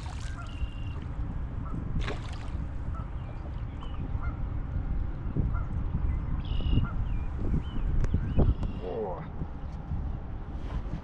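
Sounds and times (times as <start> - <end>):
birds calling: 0.0 - 1.1.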